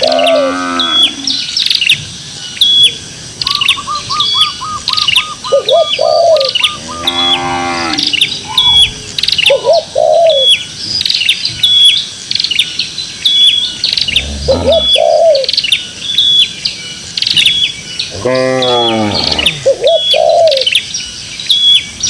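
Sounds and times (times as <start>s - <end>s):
cow mooing: 0.0s - 1.4s, 6.8s - 8.3s, 14.1s - 15.0s, 18.1s - 19.9s.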